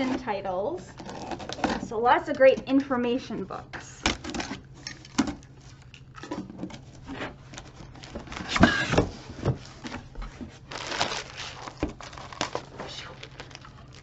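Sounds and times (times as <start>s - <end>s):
packaging rustling: 4.2s - 14.0s.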